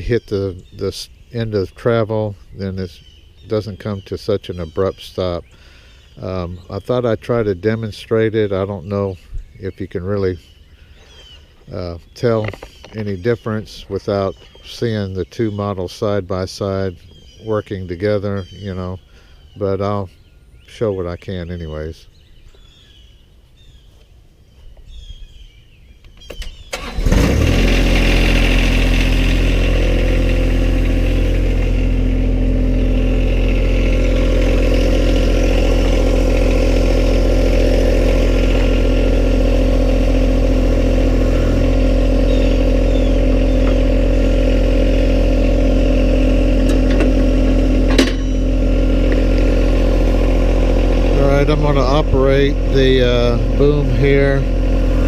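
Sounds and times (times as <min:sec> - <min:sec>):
diesel engine starting and running: 0:00.0 - 0:20.0, 0:26.2 - 0:55.0
faint bird chirps: 0:08.7 - 0:16.1, 0:16.9 - 0:26.8.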